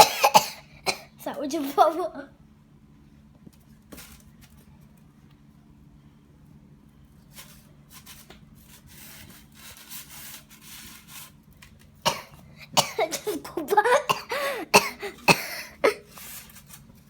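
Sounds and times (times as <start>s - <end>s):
low steady hum: 0.0s - 17.0s
rubbing and rustling: 7.2s - 12.0s, 15.0s - 17.0s.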